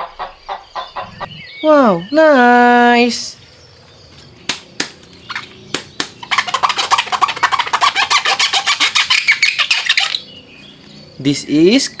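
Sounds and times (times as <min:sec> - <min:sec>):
chicken clucking: 0:00.0 - 0:01.3.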